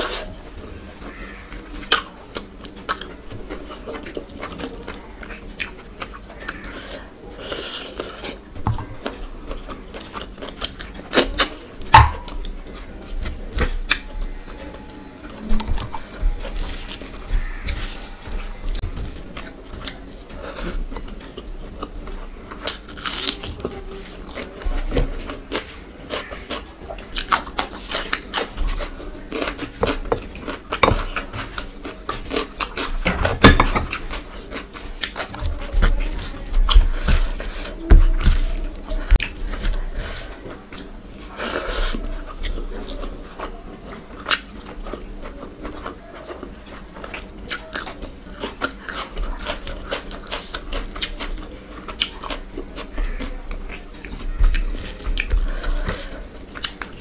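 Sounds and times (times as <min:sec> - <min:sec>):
person chewing and biting food: 0:15.4 - 0:57.0.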